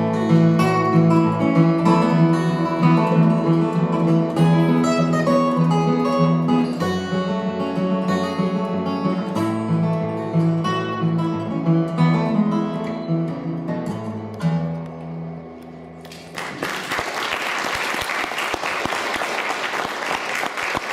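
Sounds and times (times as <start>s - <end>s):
acoustic guitar playing: 0.0s - 16.3s.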